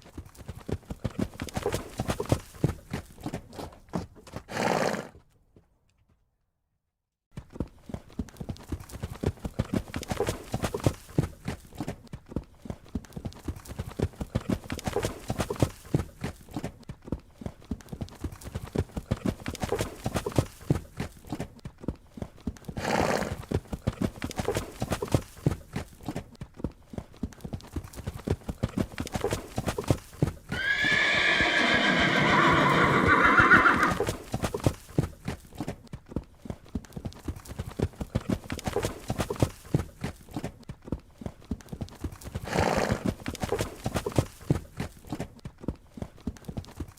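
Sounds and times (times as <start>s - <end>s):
horse hoofbeats on ground: 0.0s - 6.4s, 7.3s - 46.9s
horse neighing: 30.5s - 34.2s.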